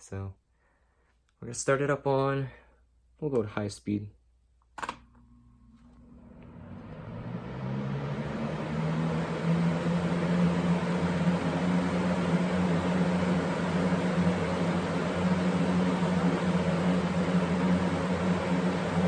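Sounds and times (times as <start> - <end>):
box fan running: 4.8 - 19.0.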